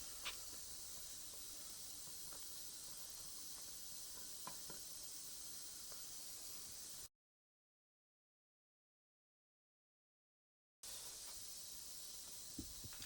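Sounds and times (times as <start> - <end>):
steady faint hiss: 0.0 - 7.1, 10.8 - 13.0.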